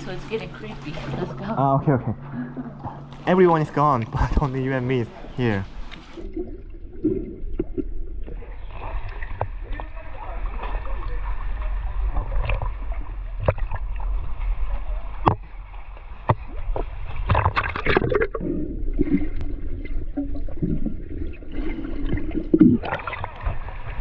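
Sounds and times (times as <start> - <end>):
water sloshing and gurgling: 0.0 - 24.0
water splashes and knocks: 5.6 - 11.2, 11.9 - 14.5, 15.1 - 21.4, 22.0 - 24.0.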